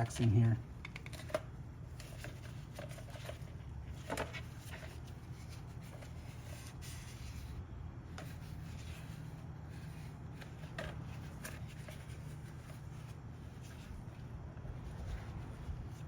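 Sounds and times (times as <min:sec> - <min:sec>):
steady low hum: 0:00.0 - 0:16.0
hands handling rubber hoses: 0:08.1 - 0:16.0.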